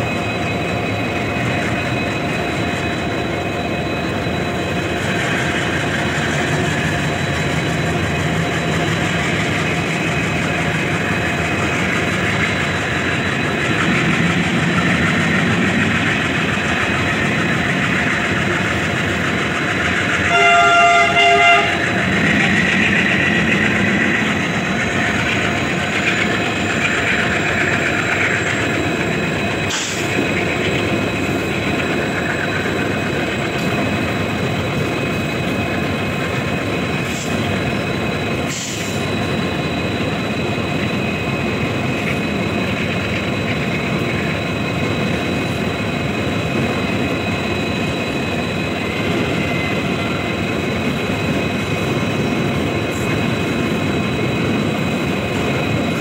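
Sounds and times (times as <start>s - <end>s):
train wheels rumbling on rails: 0.0s - 56.0s
train horn: 20.2s - 22.0s.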